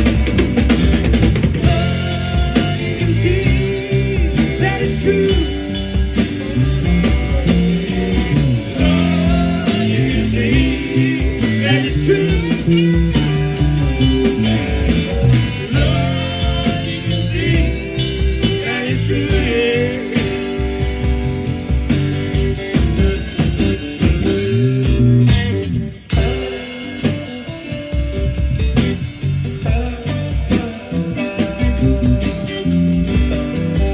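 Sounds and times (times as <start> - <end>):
drums: 0.0 - 33.9
guitar: 0.0 - 33.9
person singing: 1.6 - 20.6.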